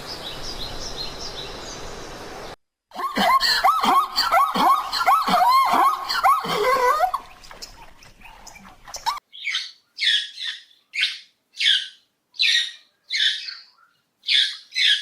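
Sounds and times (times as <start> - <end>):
bird calling: 3.5 - 15.0.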